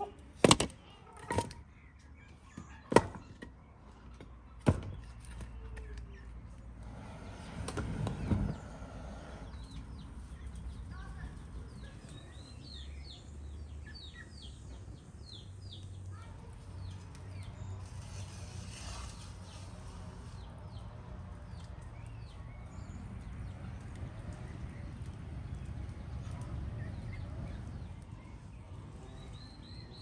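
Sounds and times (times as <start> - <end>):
low outdoor rumble: 3.8 - 30.0
small songbird chirping: 8.1 - 30.0.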